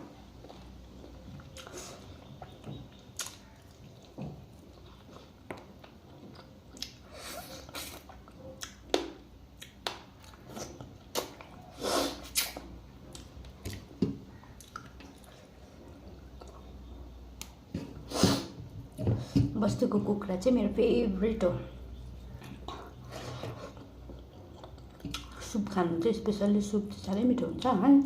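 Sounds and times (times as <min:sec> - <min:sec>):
wet chewing and smacking: 0:00.3 - 0:17.8, 0:22.0 - 0:25.5.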